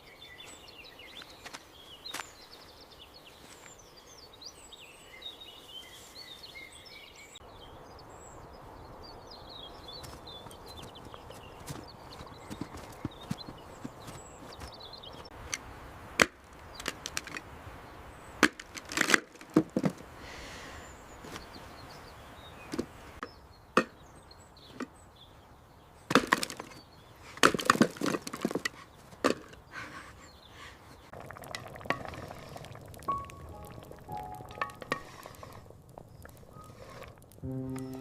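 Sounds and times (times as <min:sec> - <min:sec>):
sharp irregular knocks and cracks: 0:16.2 - 0:17.4, 0:18.4 - 0:20.0, 0:26.1 - 0:26.8, 0:27.4 - 0:29.6.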